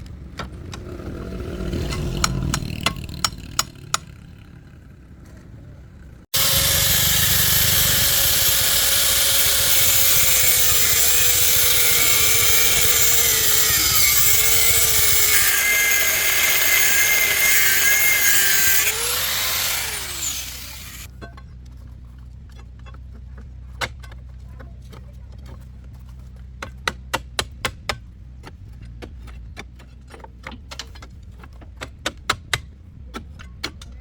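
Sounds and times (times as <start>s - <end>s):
power tool grinding: 6.3s - 21.1s.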